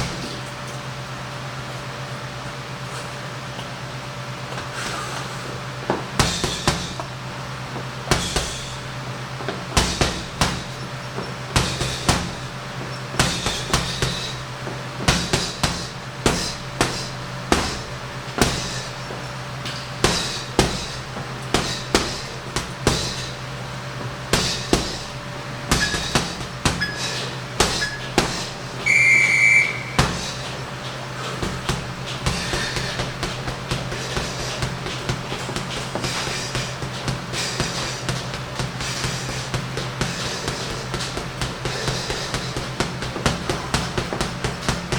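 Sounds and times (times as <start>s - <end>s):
steady low hum: 0.0s - 44.9s
punches thudding into punching bag: 5.9s - 7.1s, 8.0s - 23.4s, 24.0s - 28.7s, 29.8s - 30.7s, 31.3s - 44.9s
long high electronic beep: 28.9s - 30.1s
faint short beeps: 28.9s - 30.2s.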